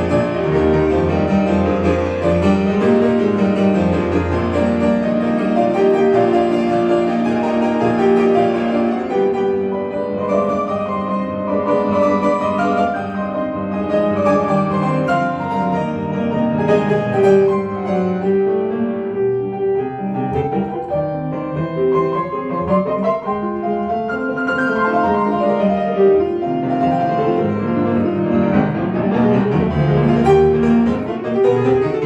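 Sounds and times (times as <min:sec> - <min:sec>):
solo piano classical piece: 0:00.0 - 0:32.0.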